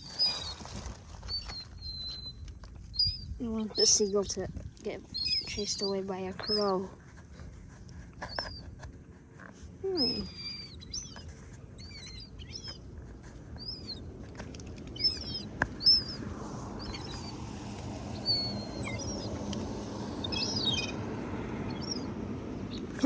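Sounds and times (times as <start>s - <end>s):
young gulls peeping: 0.0s - 6.9s, 8.2s - 8.7s, 10.0s - 23.0s
steady outdoor hiss: 9.0s - 23.0s.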